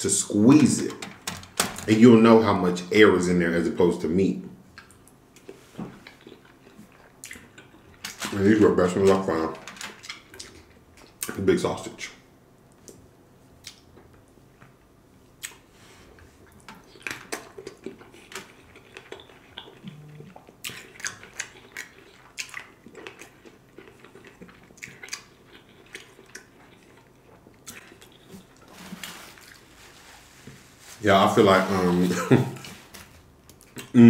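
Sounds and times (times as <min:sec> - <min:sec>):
close chewing: 0:04.7 - 0:08.4, 0:15.4 - 0:29.9.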